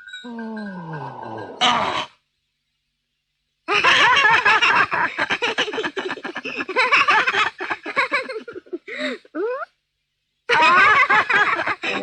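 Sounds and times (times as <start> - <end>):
children giggling: 3.7 - 9.7, 10.5 - 12.0.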